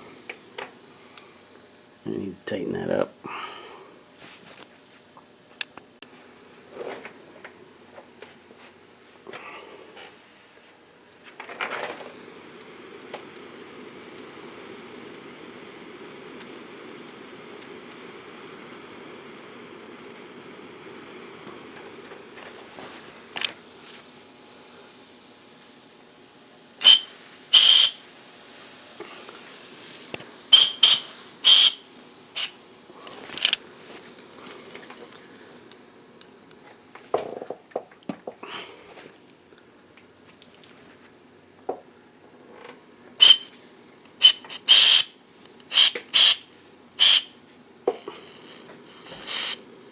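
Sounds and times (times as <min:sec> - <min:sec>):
steam hissing: 0:09.5 - 0:10.8, 0:11.6 - 0:23.9, 0:26.8 - 0:32.6, 0:43.2 - 0:43.6, 0:44.2 - 0:49.9
steam whistle toots: 0:26.8 - 0:28.0, 0:30.5 - 0:32.6, 0:43.2 - 0:43.6, 0:44.2 - 0:47.4.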